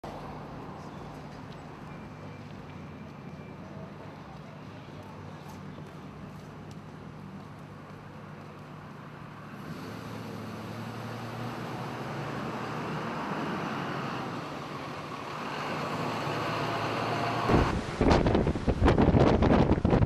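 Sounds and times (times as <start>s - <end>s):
vehicles passing close by: 0.0s - 20.0s
wind buffeting microphone: 17.5s - 20.0s.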